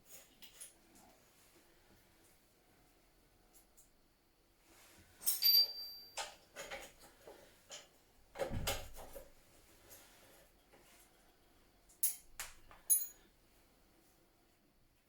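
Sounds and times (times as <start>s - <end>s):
metal clink with ring: 5.2s - 6.5s, 12.8s - 13.2s.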